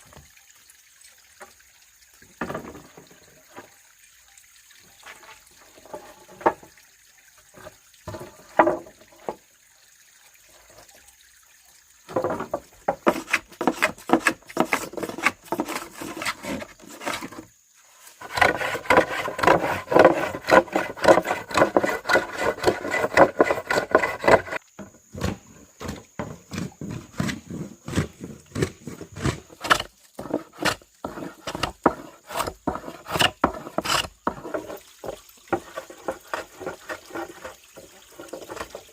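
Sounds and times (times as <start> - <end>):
hand tools striking wood: 12.1 - 17.3, 18.3 - 34.6.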